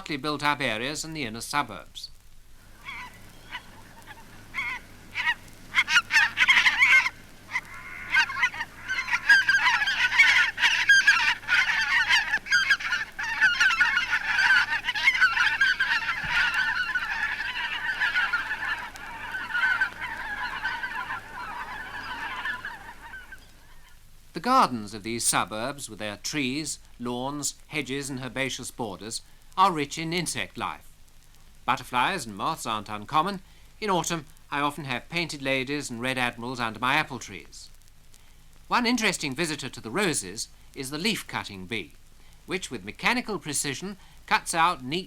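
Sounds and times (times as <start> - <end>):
geese honking: 2.6 - 24.0.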